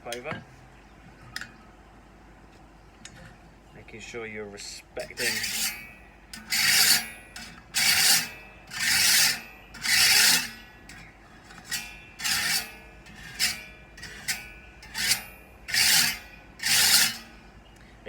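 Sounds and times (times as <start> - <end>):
rod scraping saw blade teeth: 5.0 - 17.4.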